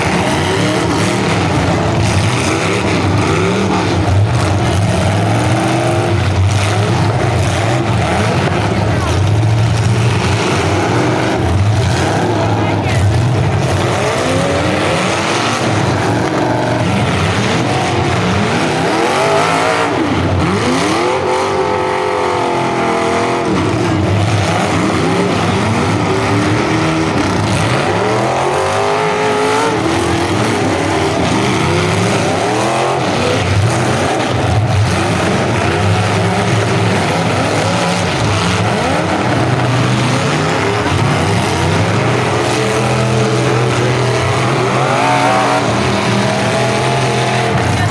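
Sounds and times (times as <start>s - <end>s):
car engines revving: 0.0s - 47.9s.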